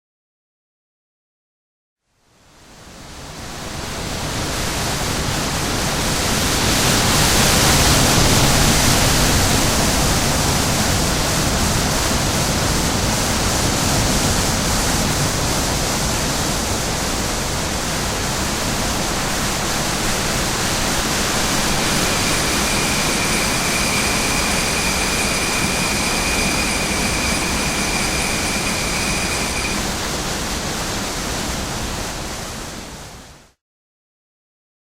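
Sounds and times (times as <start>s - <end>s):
loud rushing noise: 6.2s - 32.5s
high steady whine: 15.0s - 32.5s.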